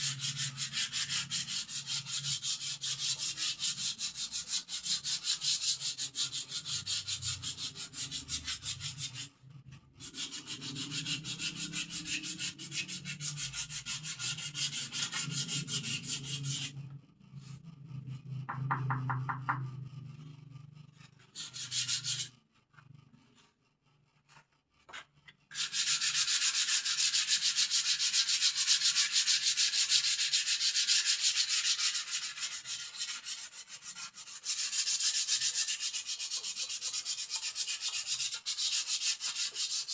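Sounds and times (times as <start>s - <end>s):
sandpaper scraping wood: 0.0s - 9.3s, 10.0s - 16.8s, 21.0s - 22.4s, 25.5s - 39.9s.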